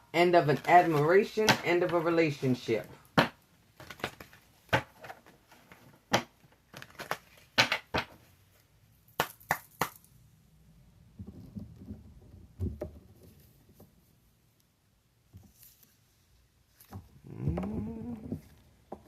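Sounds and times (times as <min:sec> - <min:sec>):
cards snapping and tapping: 0:03.2 - 0:05.1, 0:09.2 - 0:10.1.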